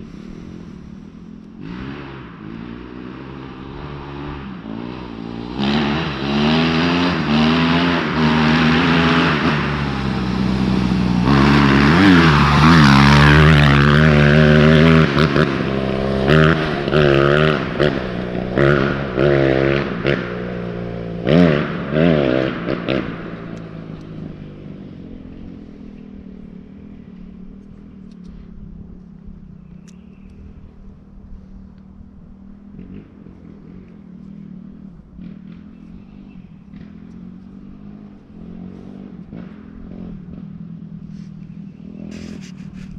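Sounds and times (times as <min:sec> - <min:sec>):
dirt bike engine revving: 0:00.0 - 0:27.4.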